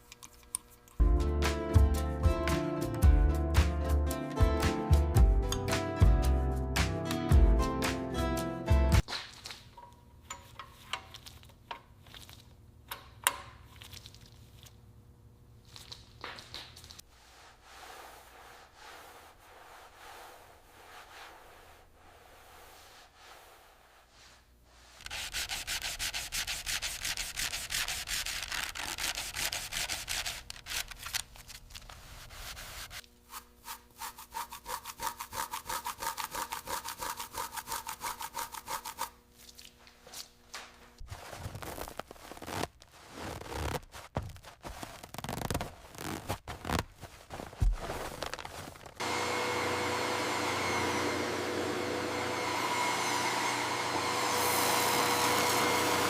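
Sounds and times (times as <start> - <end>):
soft rubbing: 17.0 - 30.6, 31.7 - 40.3, 41.0 - 49.0
fast sanding strokes: 25.0 - 30.8, 32.0 - 39.2.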